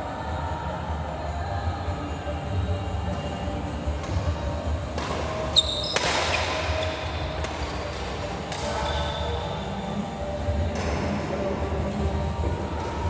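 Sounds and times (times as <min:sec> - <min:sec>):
sports hall rumble: 0:00.0 - 0:13.0
shoe squeak on court: 0:05.4 - 0:07.1.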